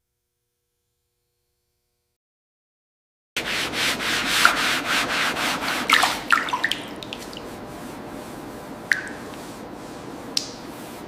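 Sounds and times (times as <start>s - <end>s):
sanding strokes on rusted surface: 3.4s - 5.9s.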